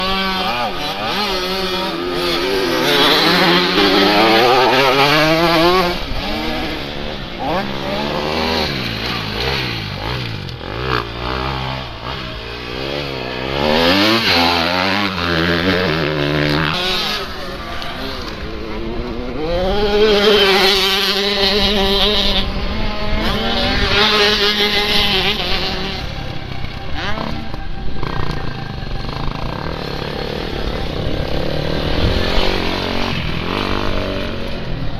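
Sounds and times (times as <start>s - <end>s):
motorcycle engines revving: 0.0s - 34.9s.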